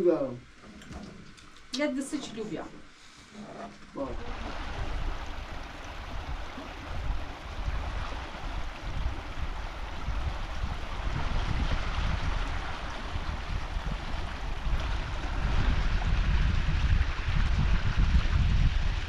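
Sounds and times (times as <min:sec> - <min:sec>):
wind buffeting microphone: 0:04.1 - 0:19.0.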